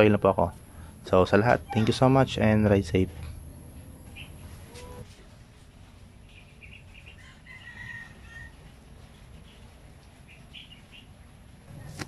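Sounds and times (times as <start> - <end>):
low background rumble: 0.0 - 12.0
bird chirps: 3.4 - 5.0, 9.4 - 11.1.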